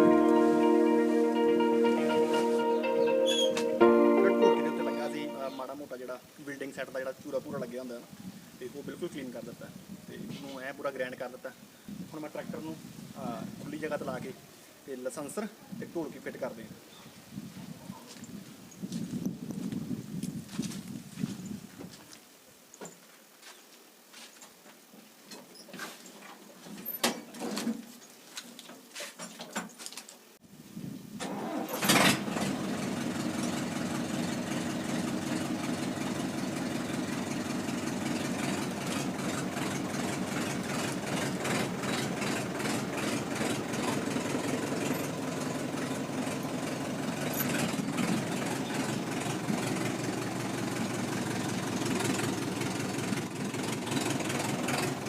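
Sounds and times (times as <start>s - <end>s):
tractor diesel engine starting: 0.0s - 2.1s, 31.2s - 55.0s.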